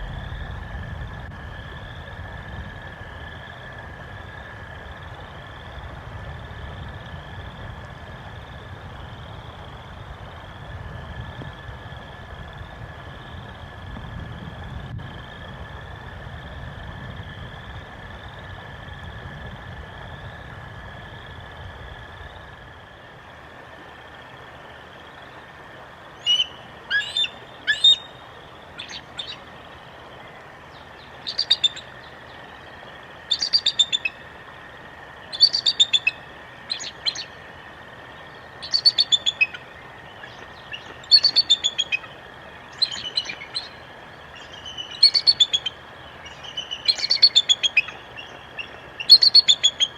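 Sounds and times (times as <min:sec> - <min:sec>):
faint steady background tone: 0:00.0 - 0:49.9
songbird singing: 0:24.2 - 0:49.9.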